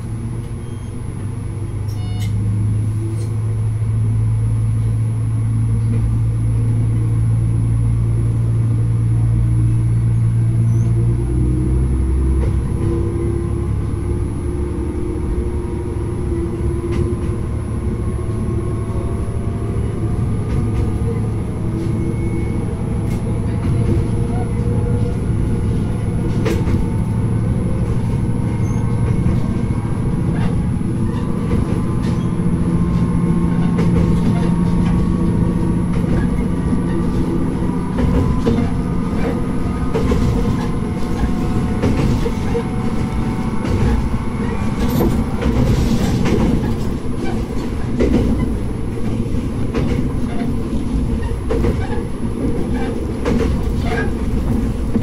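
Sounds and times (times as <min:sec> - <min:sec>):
diesel engine drone: 0:00.0 - 0:55.0
wheels clicking over rail joints: 0:23.0 - 0:55.0.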